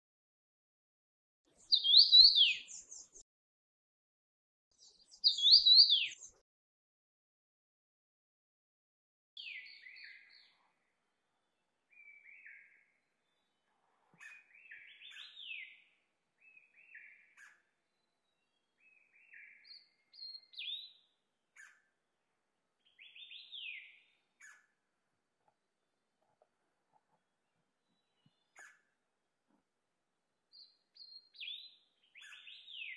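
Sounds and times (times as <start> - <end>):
bird whistled song phrases: 1.6 - 3.2, 4.8 - 6.3, 18.9 - 21.0, 23.0 - 24.6, 30.6 - 32.9.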